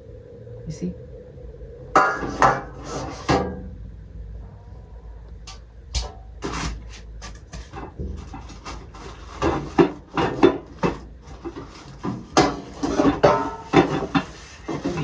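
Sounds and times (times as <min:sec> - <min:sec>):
canisters and lids clattering: 0:02.0 - 0:03.7, 0:06.0 - 0:15.0.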